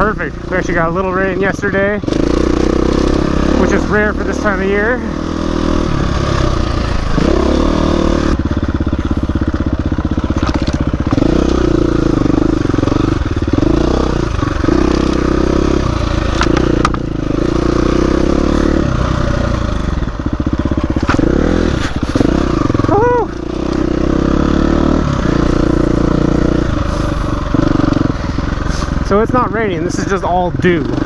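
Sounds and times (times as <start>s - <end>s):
dirt bike engine revving: 0.0s - 31.0s
bike knocking and clattering: 8.3s - 18.2s, 19.4s - 22.5s.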